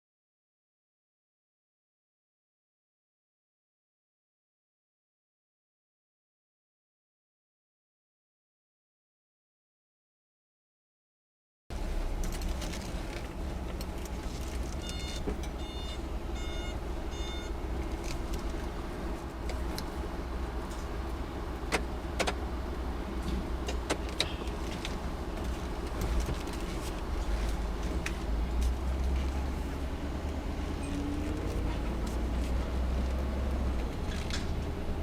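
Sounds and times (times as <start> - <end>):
car engine and road rumble: 11.7 - 35.0
electronic chime beeps: 14.9 - 17.5.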